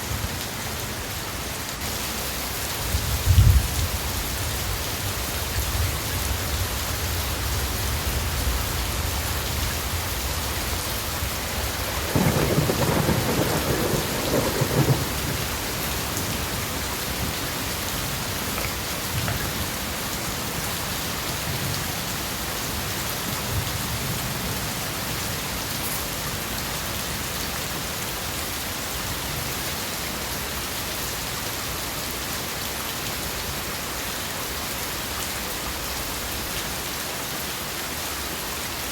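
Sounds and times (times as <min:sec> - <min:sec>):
steady rain: 0:00.0 - 0:38.9
thunder rumbling: 0:10.6 - 0:20.6.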